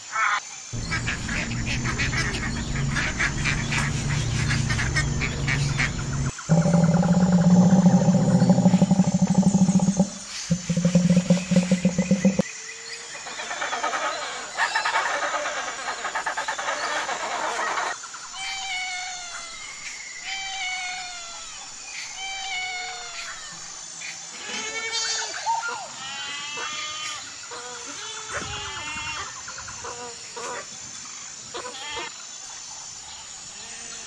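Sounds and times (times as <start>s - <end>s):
animal chattering: 0.8s - 12.4s
low rapidly pulsing animal call: 0.8s - 12.4s.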